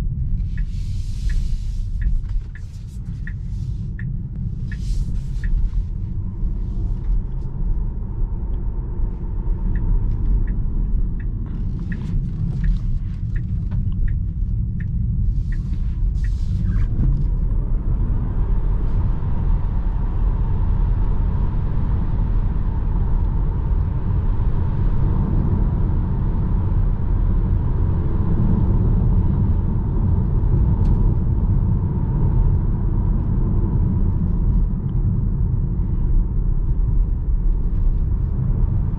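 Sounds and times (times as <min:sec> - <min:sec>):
tyre and road rumble: 0:00.0 - 0:20.5
light ticks: 0:00.4 - 0:07.8, 0:08.4 - 0:17.6.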